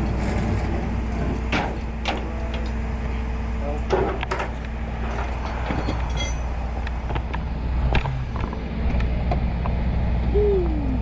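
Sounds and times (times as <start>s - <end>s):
truck engine idling: 0.0s - 11.0s
metal clanks and knocks: 1.2s - 2.7s, 3.8s - 7.4s.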